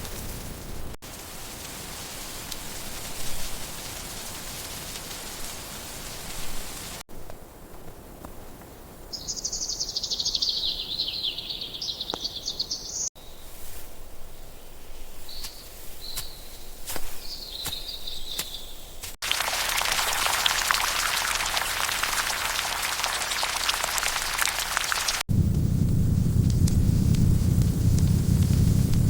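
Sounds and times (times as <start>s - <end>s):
steady hiss: 0.0s - 7.7s, 19.2s - 29.0s.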